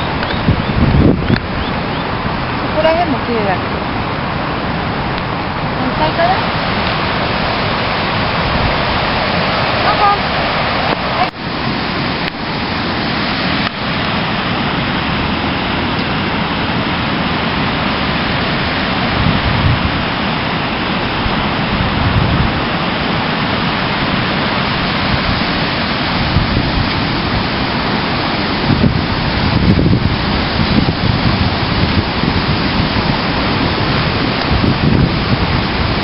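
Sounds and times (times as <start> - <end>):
strong wind buffeting microphone: 0.0 - 36.0.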